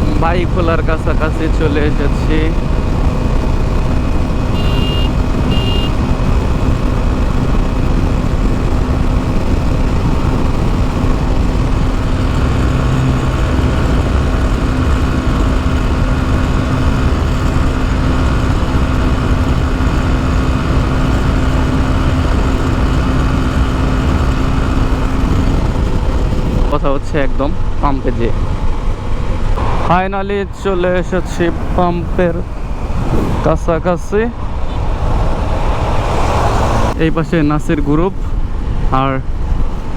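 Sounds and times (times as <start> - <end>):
motorcycle engine hum: 0.0 - 39.9
wind and road noise: 0.0 - 39.9
short high beeps: 4.6 - 5.9.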